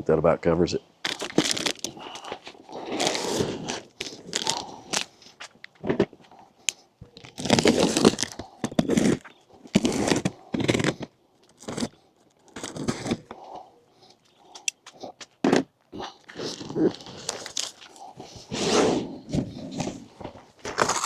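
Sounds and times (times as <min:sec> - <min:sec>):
cardboard box tearing open: 0:01.0 - 0:06.2, 0:07.1 - 0:13.4, 0:15.4 - 0:20.0, 0:20.6 - 0:21.0.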